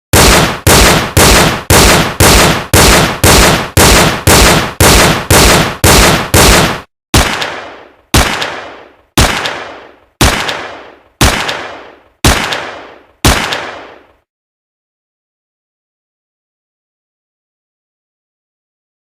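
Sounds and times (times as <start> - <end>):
gunshots with reverberating tail: 0.1 - 14.2.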